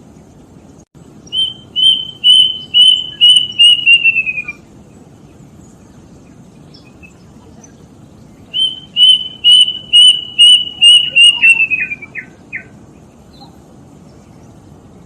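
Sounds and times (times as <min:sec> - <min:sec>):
cuckoo whistled song: 0:01.3 - 0:04.6, 0:08.5 - 0:12.7.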